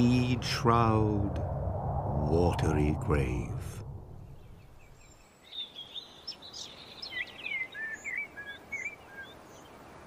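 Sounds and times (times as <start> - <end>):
birds singing: 4.1 - 10.0.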